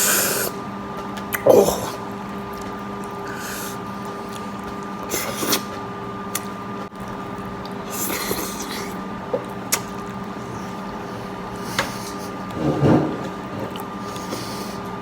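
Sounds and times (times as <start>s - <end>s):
wet slurps: 3.1s - 5.8s, 7.9s - 9.0s.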